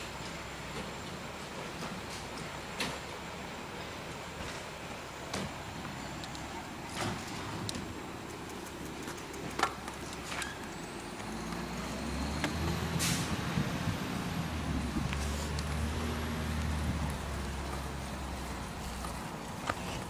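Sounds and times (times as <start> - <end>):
garbage truck diesel engine: 0.0 - 20.0
sharp clicks: 7.6 - 11.6
air hiss: 12.9 - 13.4.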